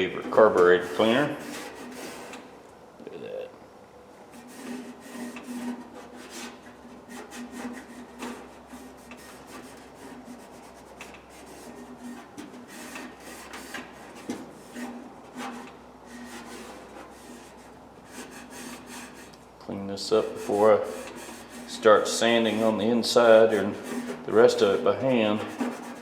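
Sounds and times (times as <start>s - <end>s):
scrubbing metal rails: 20.1s - 26.0s.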